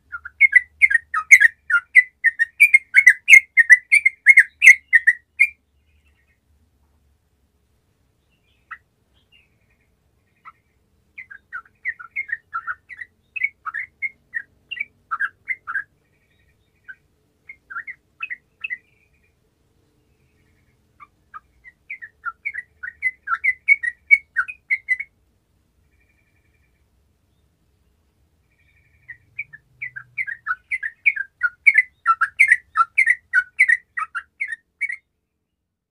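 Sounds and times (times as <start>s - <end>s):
bulbul chirping: 0.1s - 5.6s, 21.0s - 25.1s, 28.6s - 35.1s.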